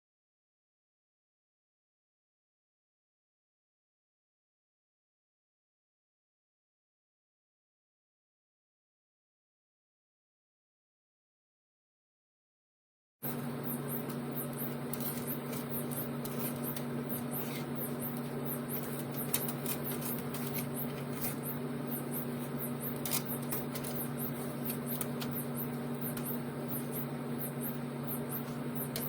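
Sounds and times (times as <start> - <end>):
low mechanical hum with hiss: 13.2 - 29.0.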